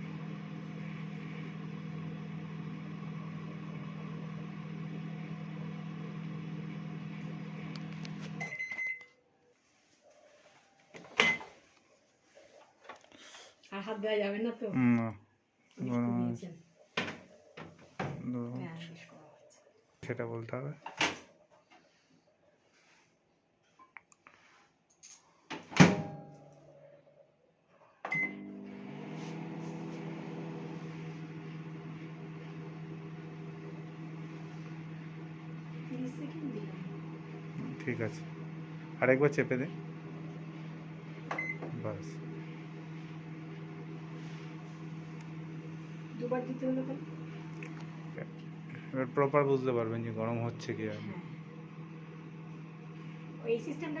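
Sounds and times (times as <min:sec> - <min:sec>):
microwave oven humming: 0:00.0 - 0:09.1, 0:14.7 - 0:15.2, 0:15.8 - 0:16.4, 0:25.6 - 0:27.2, 0:28.0 - 0:54.0
microwave high beep: 0:08.4 - 0:09.1, 0:28.1 - 0:28.6, 0:41.3 - 0:41.8.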